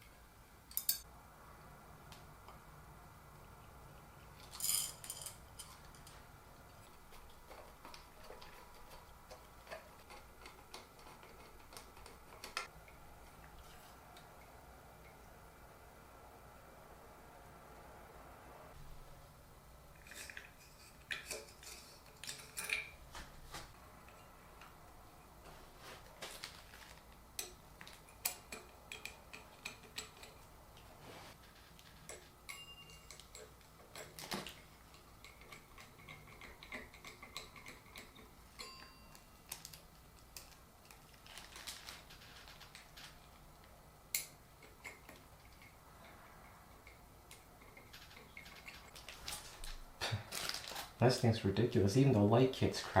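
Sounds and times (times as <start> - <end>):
small metal parts clicking and clinking: 0.7 - 1.1, 4.4 - 6.2, 20.0 - 23.0, 31.4 - 43.4.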